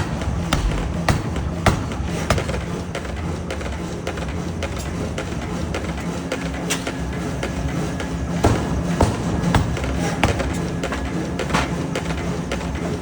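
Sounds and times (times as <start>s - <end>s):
forging hammer striking: 0.0s - 3.7s, 8.4s - 12.1s
low machine hum: 0.0s - 13.0s.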